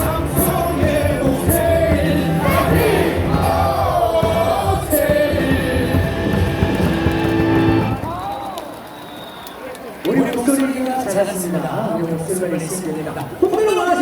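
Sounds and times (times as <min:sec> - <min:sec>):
crowd singing a cheer song: 0:00.0 - 0:08.0
loud amplified music: 0:00.0 - 0:08.2.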